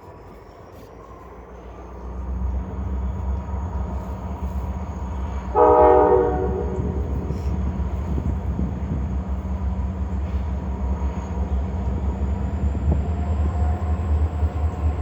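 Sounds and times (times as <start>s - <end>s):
diesel locomotive rumbling: 0.0s - 15.0s
locomotive horn blast: 5.5s - 7.5s.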